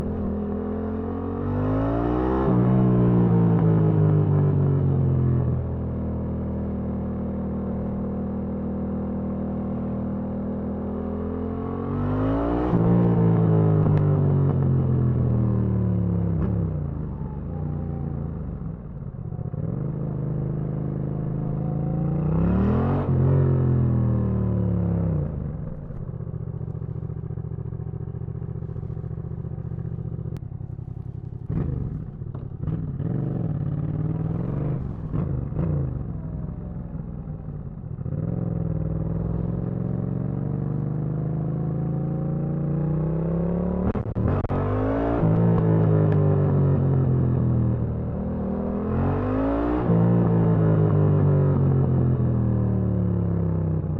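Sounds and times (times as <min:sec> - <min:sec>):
motorcycle engine revving: 0:19.3 - 0:53.9.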